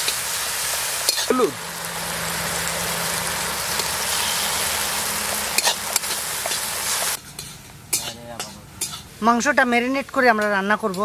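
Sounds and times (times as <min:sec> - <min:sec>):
food sizzling in hot oil: 0:00.0 - 0:07.2.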